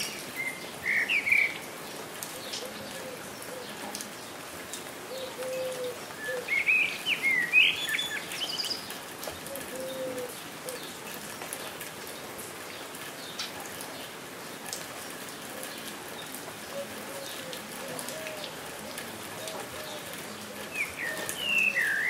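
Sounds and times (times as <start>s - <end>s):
songbird chirping: 0.0s - 4.5s, 5.1s - 22.0s
steady rain falling: 0.0s - 22.0s
faint drip ticks: 1.9s - 6.5s, 14.6s - 22.0s
low cooing call: 2.3s - 4.0s, 5.1s - 7.6s, 9.5s - 10.9s, 16.7s - 22.0s.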